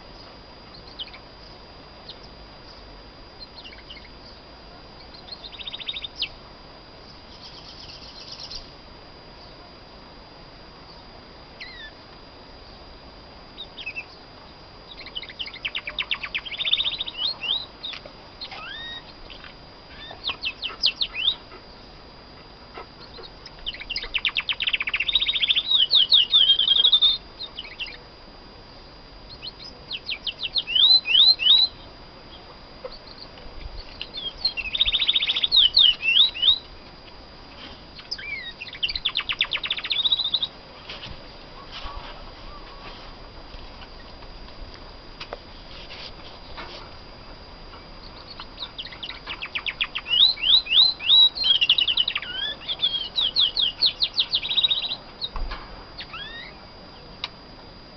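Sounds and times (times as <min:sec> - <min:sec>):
canary singing: 0:00.0 - 0:06.4, 0:07.1 - 0:08.8, 0:10.8 - 0:12.0, 0:13.6 - 0:21.8, 0:22.8 - 0:28.1, 0:29.2 - 0:36.8, 0:37.9 - 0:40.6, 0:47.9 - 0:55.4, 0:56.0 - 0:57.1.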